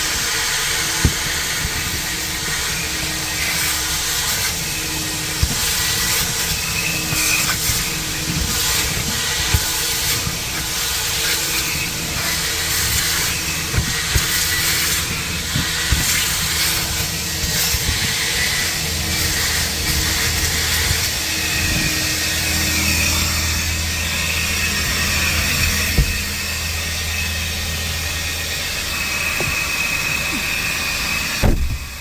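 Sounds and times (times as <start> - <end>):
vacuum suction hiss: 0.0 - 32.0
nozzle knocks and clicks: 0.9 - 2.1, 24.9 - 26.4, 31.4 - 32.0.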